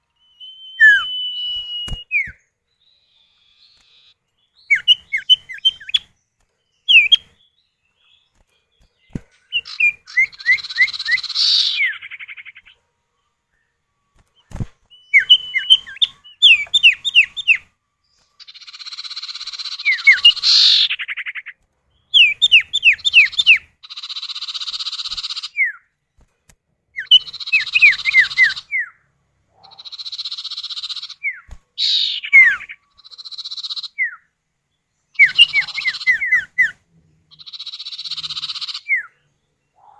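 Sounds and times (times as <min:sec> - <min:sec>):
bird whistled notes: 0:00.2 - 0:06.0, 0:14.4 - 0:17.6, 0:29.6 - 0:34.2
bird churring trills: 0:09.5 - 0:12.7, 0:18.4 - 0:21.5, 0:29.6 - 0:34.2, 0:35.2 - 0:36.7, 0:37.3 - 0:39.1.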